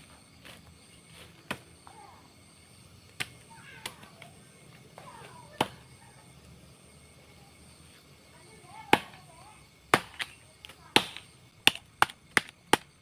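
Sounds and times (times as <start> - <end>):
machete chopping into tree: 9.9 - 10.4, 11.0 - 12.9.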